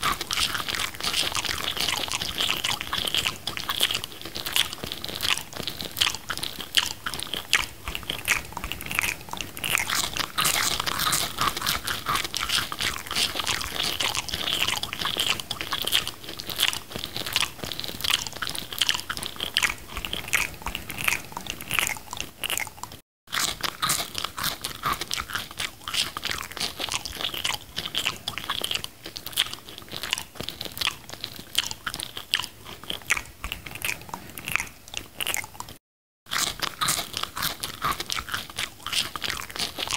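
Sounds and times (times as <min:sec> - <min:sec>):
person chewing food: 0:00.0 - 0:39.9.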